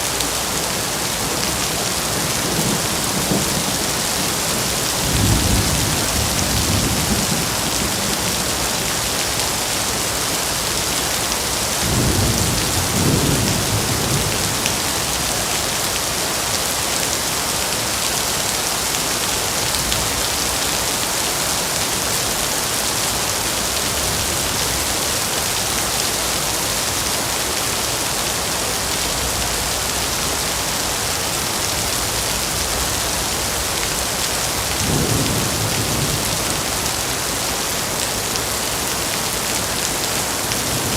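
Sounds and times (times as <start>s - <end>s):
steady rain: 0.0s - 40.9s
rolling thunder: 1.6s - 8.8s, 11.8s - 15.5s, 32.6s - 37.1s.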